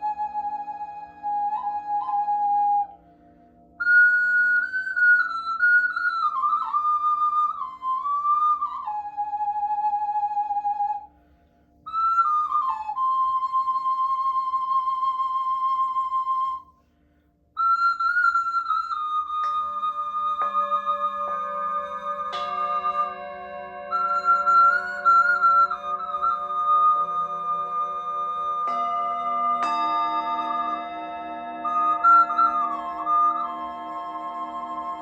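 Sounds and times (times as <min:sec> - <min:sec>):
flute playing sliding notes: 0:00.0 - 0:03.0, 0:03.8 - 0:11.0, 0:11.9 - 0:16.6, 0:17.6 - 0:35.0
low pulsing drone: 0:19.5 - 0:35.0.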